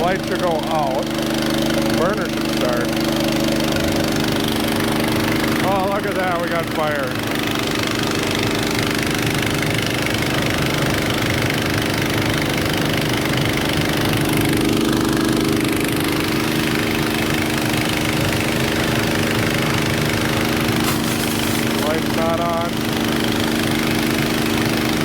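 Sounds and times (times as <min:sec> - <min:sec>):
pressure washer engine droning: 0:00.0 - 0:25.0.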